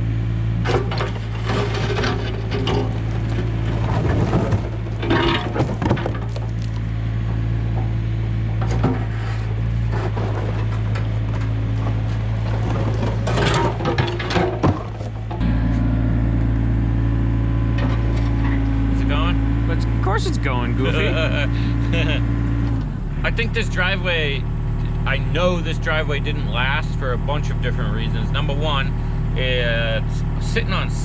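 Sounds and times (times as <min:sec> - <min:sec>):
excavator diesel engine running: 0:00.0 - 0:31.0
bucket clanking and scraping concrete: 0:00.6 - 0:06.9, 0:08.5 - 0:15.4.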